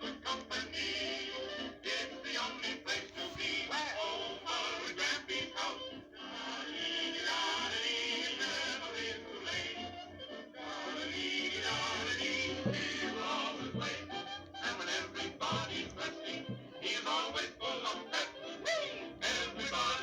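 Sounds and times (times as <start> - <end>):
background music: 0.0 - 20.0
cartoon cat singing: 14.7 - 20.0.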